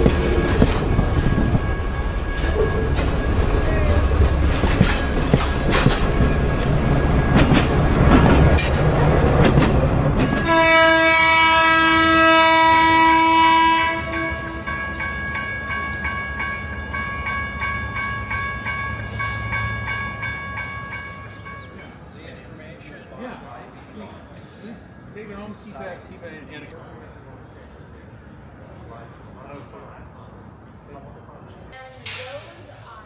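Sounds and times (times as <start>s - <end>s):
train rumbling and clattering: 0.0s - 33.0s
train horn blast: 10.3s - 14.8s.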